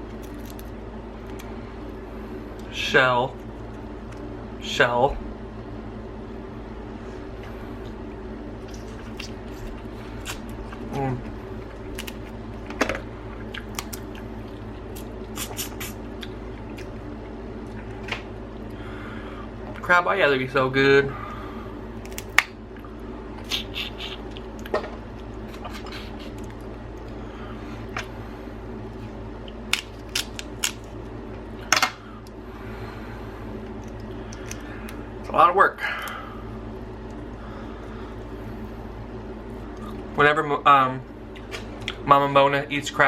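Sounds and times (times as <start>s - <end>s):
wet squishing and chewing: 0.0s - 2.7s, 3.3s - 4.3s, 7.4s - 18.8s, 22.0s - 28.1s, 28.8s - 31.6s, 33.5s - 35.3s, 36.0s - 38.7s, 41.0s - 42.0s
steady low hum: 0.0s - 43.0s
crab shells cracking: 0.1s - 1.6s, 8.6s - 12.8s, 13.5s - 15.2s, 22.0s - 22.6s, 29.4s - 32.4s, 33.6s - 35.0s.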